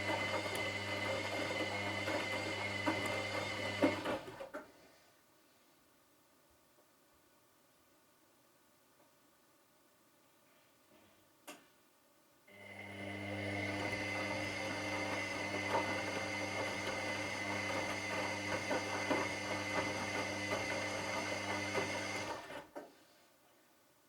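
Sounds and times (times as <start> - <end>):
washing machine motor humming: 0.0 - 4.4, 12.5 - 22.6.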